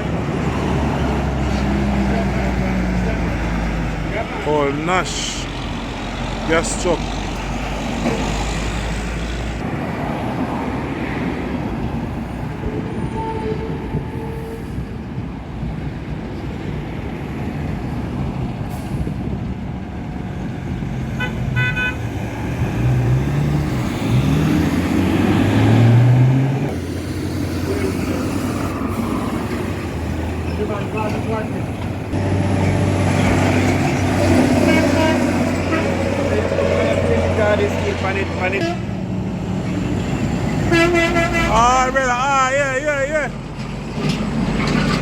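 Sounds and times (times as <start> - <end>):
truck engine passing: 0.0 - 12.7, 16.7 - 45.0
road traffic: 0.0 - 45.0
horn short toots: 34.6 - 36.0.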